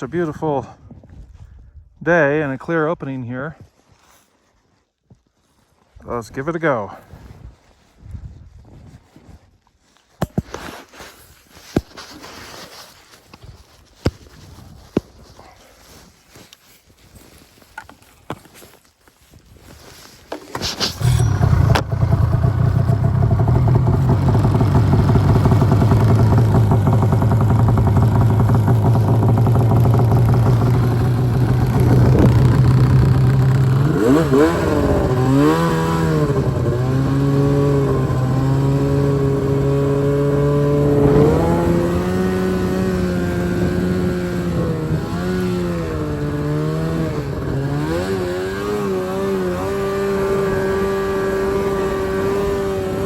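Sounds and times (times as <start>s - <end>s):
snowmobile engine revving: 20.5s - 53.0s.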